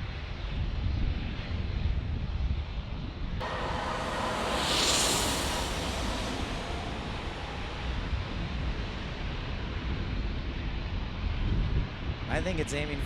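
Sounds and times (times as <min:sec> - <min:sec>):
jet engine hiss and rumble: 0:03.4 - 0:12.2.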